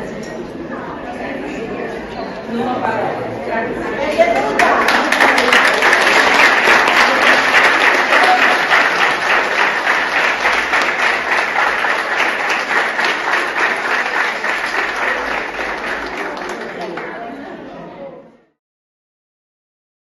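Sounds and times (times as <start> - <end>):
people applauding: 4.4 - 17.4.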